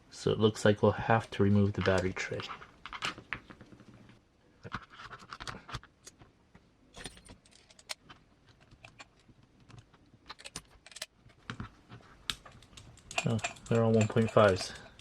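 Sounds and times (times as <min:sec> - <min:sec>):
hand tools clinking and scraping: 0:12.6 - 0:15.0.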